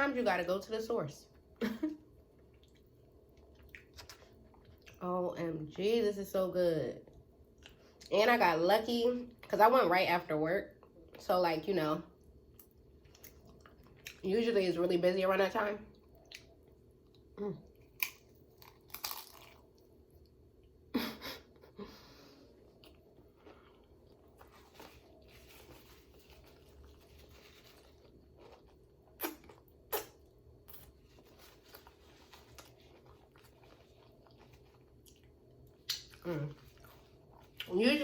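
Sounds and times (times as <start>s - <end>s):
person chewing food: 2.2s - 5.0s, 12.5s - 14.2s, 15.9s - 20.8s, 22.4s - 37.7s.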